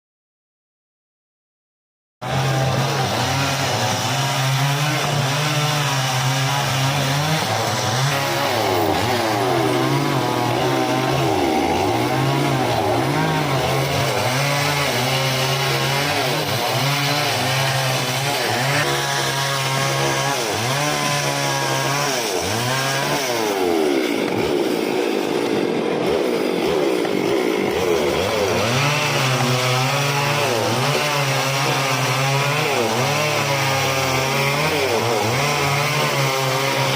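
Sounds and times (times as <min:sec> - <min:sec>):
chainsaw revving and cutting wood: 0:02.2 - 0:36.9.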